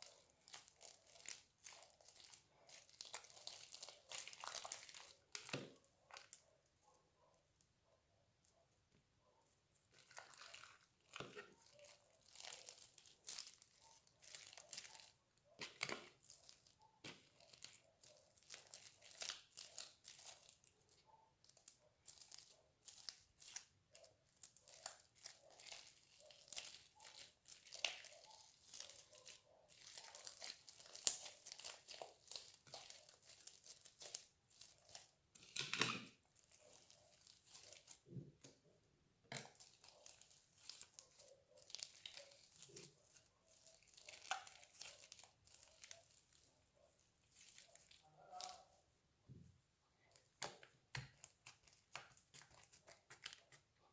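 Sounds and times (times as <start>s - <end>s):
slime crackling and popping: 0.0s - 6.4s, 10.0s - 20.6s, 24.4s - 38.1s, 43.5s - 46.2s.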